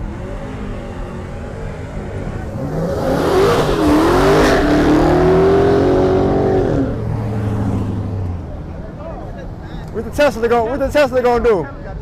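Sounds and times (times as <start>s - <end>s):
car engine revving hard: 0.0s - 8.1s.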